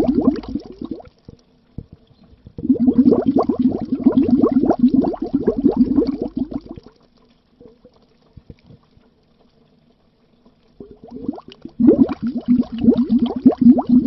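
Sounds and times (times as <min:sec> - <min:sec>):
bubbles gurgling under water: 0:00.0 - 0:07.0, 0:10.8 - 0:14.0.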